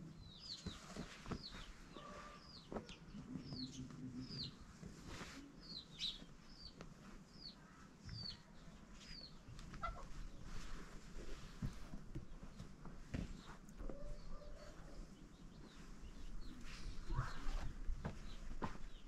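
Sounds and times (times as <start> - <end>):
birds chirping: 0.0 - 19.0
fabric rustling on carpet: 0.6 - 3.0, 4.6 - 7.9, 8.9 - 13.9.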